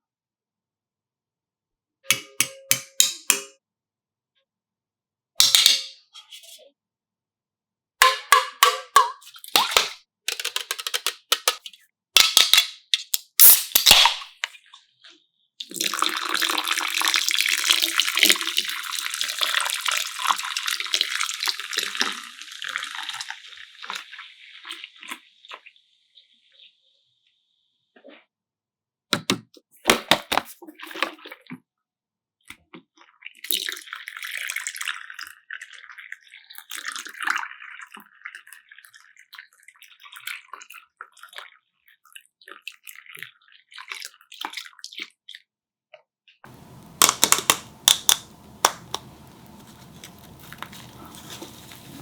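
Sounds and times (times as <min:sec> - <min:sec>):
liquid pouring and fizzing: 0:15.6 - 0:25.3, 0:46.5 - 0:52.0
sharp clicks and clinks: 0:46.5 - 0:52.0.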